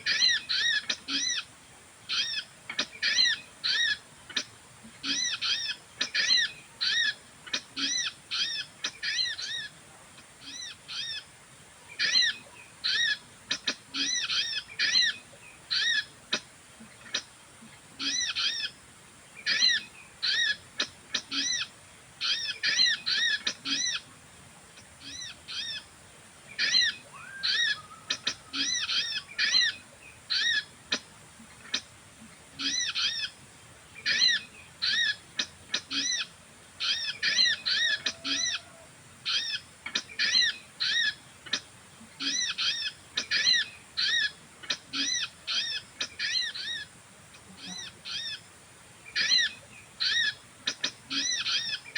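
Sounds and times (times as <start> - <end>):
bird chirps: 26.6 - 31.0.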